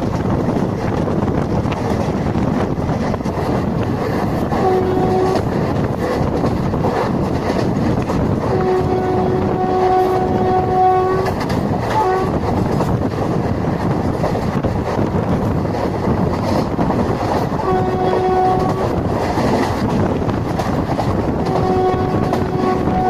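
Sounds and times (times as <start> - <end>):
train running on track: 0.0 - 23.0
locomotive horn blasts: 4.5 - 5.5, 8.5 - 12.4, 17.6 - 19.0, 21.4 - 23.0.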